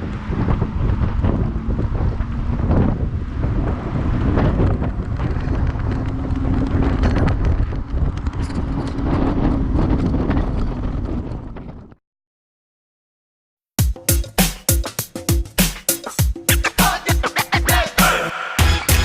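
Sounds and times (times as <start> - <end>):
bike rumbling: 0.0 - 12.0
wind buffeting microphone: 0.0 - 12.0.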